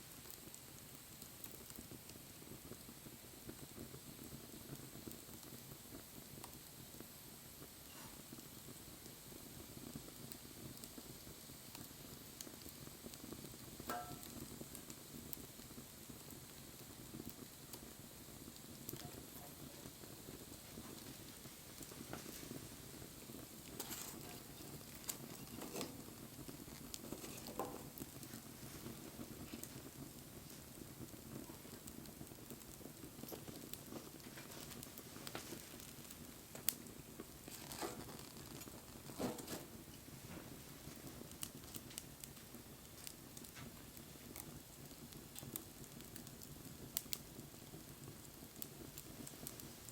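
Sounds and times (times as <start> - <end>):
fire crackling: 0.0 - 49.9
flames fluttering: 0.0 - 49.9.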